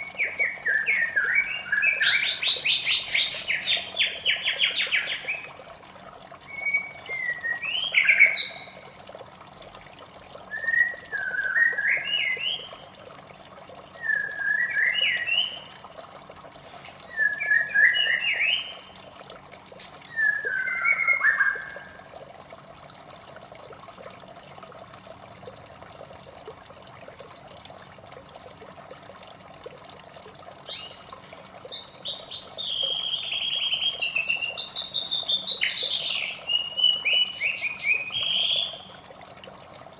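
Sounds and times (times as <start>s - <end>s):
water trickling: 0.0s - 39.9s
bird singing whistled phrases: 6.5s - 8.8s, 10.5s - 12.7s, 14.0s - 15.7s, 17.1s - 18.8s, 20.1s - 22.0s, 31.8s - 38.9s.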